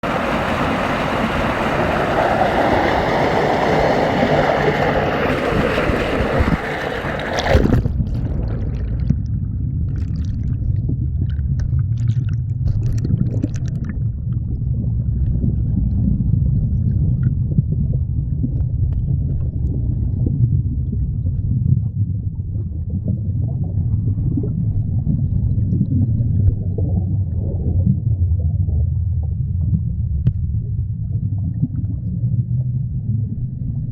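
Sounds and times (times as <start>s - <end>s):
waterfall rushing: 0.0s - 7.5s
muffled underwater rumble: 0.0s - 33.9s
faint underwater clicks: 0.8s - 14.6s.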